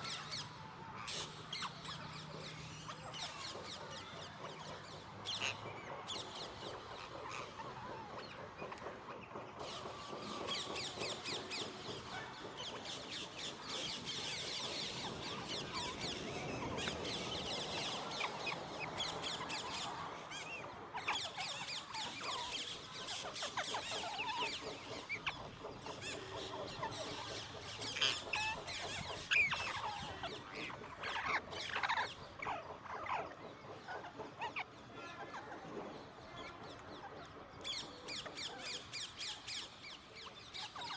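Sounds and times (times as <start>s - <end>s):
parakeets chattering: 9.6s - 40.9s.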